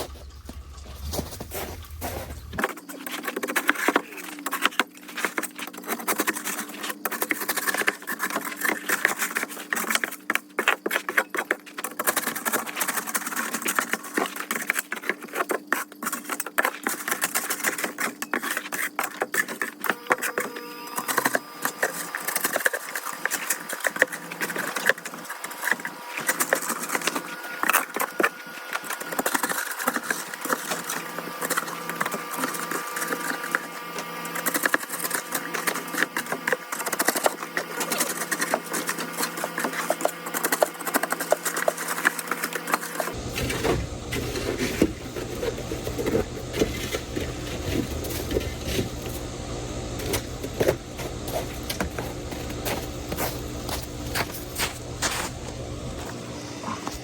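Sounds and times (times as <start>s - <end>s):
metal shovel scraping ice: 0.0s - 2.8s, 17.4s - 49.3s, 49.9s - 55.4s.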